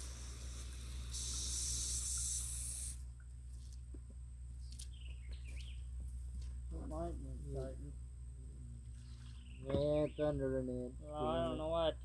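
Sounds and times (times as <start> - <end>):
water spraying from hose: 0.0 - 3.1.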